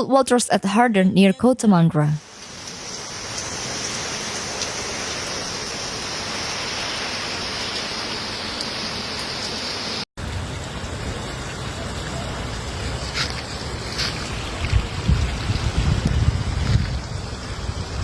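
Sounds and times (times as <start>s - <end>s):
heavy rain pouring: 2.2s - 18.0s
rumbling wash of water: 2.2s - 18.0s
wind noise: 13.1s - 18.0s.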